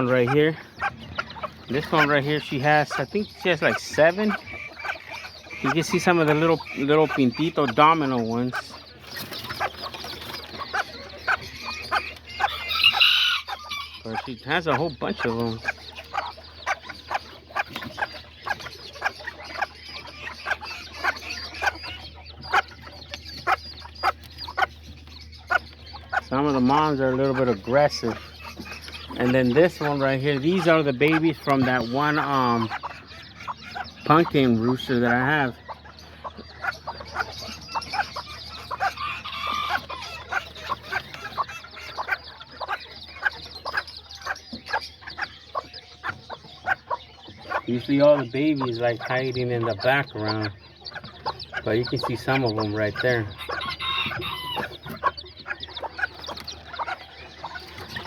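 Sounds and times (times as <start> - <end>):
chicks peeping: 0.0 - 58.0
hen clucking: 0.0 - 58.0
steady low hum: 13.4 - 58.0.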